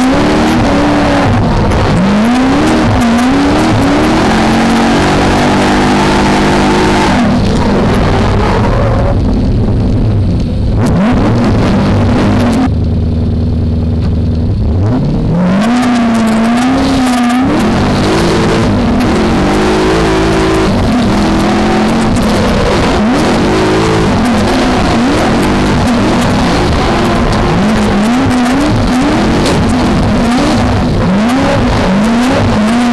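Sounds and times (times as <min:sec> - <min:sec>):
car engine revving: 0:00.0 - 0:32.9
loud rushing noise: 0:15.0 - 0:32.9.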